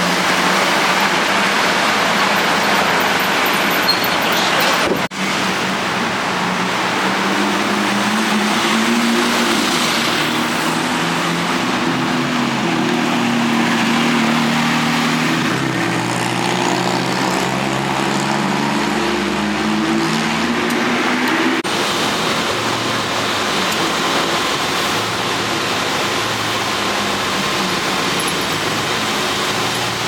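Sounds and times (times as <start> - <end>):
street traffic engines: 0.0 - 30.0.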